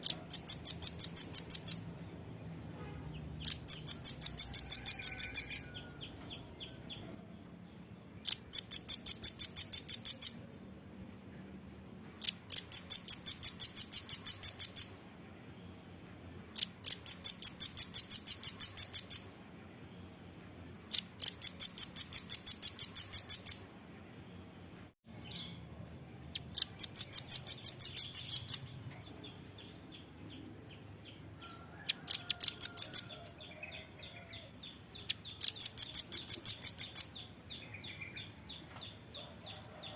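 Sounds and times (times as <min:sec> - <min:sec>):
bird calling in fast high trills: 0:03.4 - 0:05.8.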